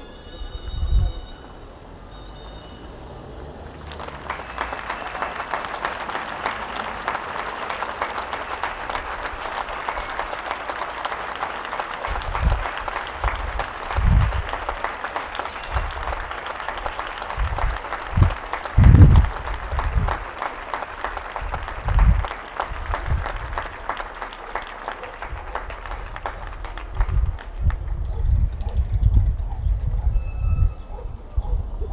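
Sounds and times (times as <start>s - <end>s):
hands clapping: 3.7s - 28.2s.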